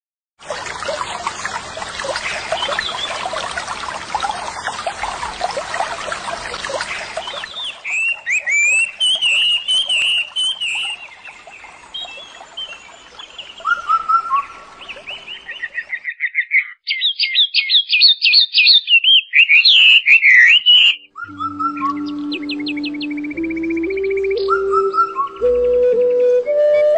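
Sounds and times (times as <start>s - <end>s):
songbirds chirping chorus: 0.4s - 26.9s
bird whistling swooping notes: 6.7s - 11.1s, 19.4s - 26.9s
flute-like music: 21.0s - 26.9s.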